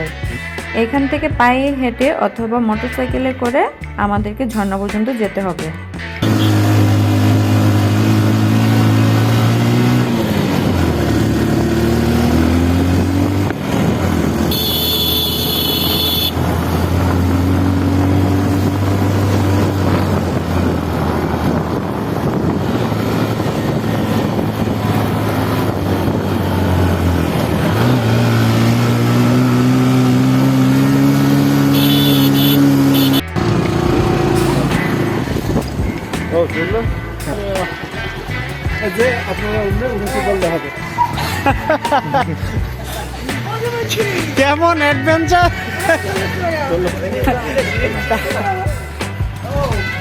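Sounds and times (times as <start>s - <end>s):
motorcycle engine running: 6.0s - 44.6s.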